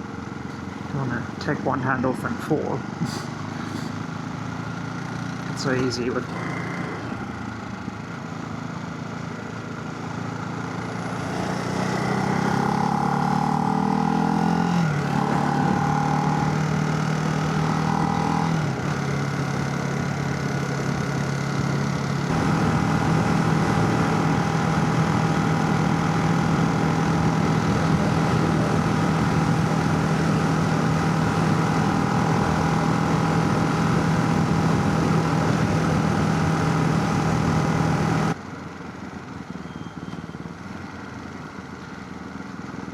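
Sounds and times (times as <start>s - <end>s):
motorcycle engine pulling hard: 5.3s - 7.4s, 10.8s - 38.4s
wind noise over microphone: 22.3s - 38.3s.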